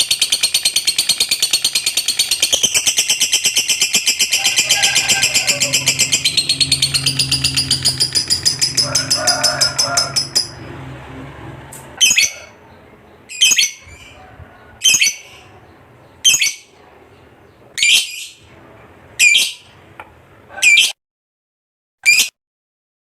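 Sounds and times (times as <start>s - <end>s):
bird shrill calls: 0.2s - 10.6s, 19.2s - 19.6s.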